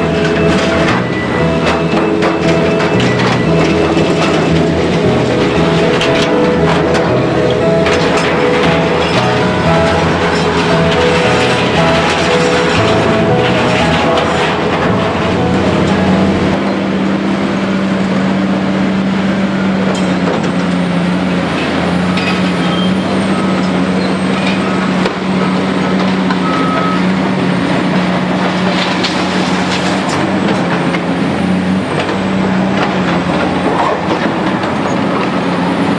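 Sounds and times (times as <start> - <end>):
reversing alarm beeping: 0.0 - 17.1, 22.2 - 27.4
diesel engine running: 0.0 - 35.9.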